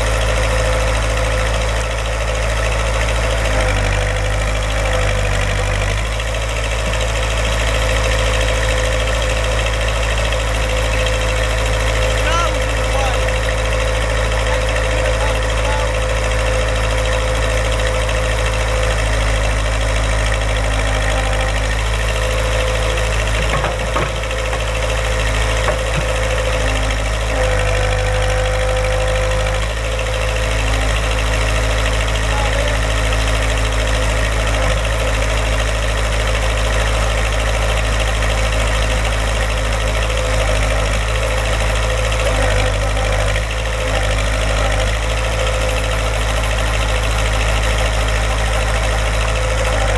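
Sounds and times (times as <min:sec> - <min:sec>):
backhoe engine idling: 0:00.0 - 0:49.9.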